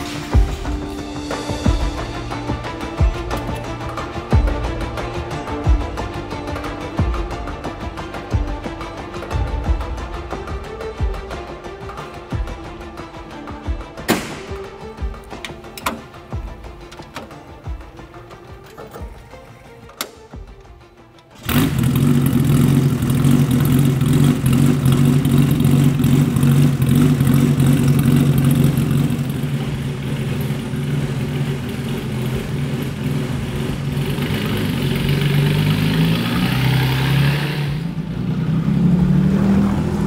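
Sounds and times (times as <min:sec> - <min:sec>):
car engine starting and idling: 0:00.0 - 0:40.0
car engine revving pulling away: 0:21.4 - 0:40.0.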